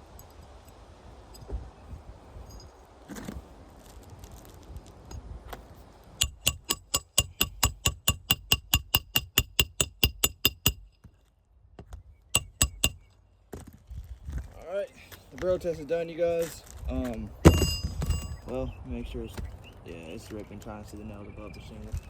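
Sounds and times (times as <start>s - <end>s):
metal hand tool tapping: 6.2s - 10.9s, 12.4s - 13.1s.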